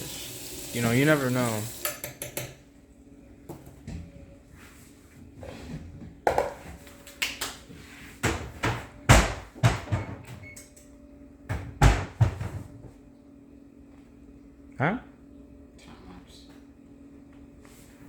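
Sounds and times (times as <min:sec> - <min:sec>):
kitchen items knocking and bumping: 0:06.2 - 0:06.8, 0:08.2 - 0:10.4, 0:11.5 - 0:12.8.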